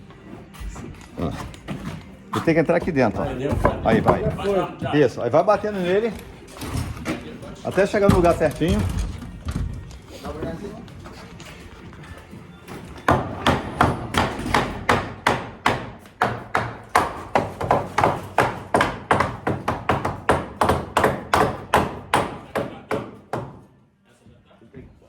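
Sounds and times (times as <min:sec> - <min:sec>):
hammer striking wooden board: 0:13.1 - 0:23.6.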